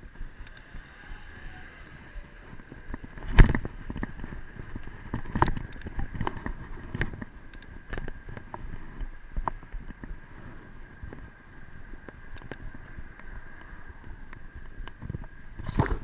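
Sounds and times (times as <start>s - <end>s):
bicycle rattling over bumps: 0.0s - 16.0s
wind on microphone: 0.0s - 16.0s.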